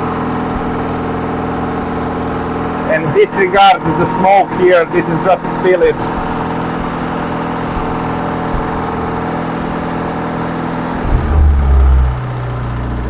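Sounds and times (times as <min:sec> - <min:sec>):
car engine idling: 0:00.0 - 0:13.0
deep low rumble: 0:11.0 - 0:13.0.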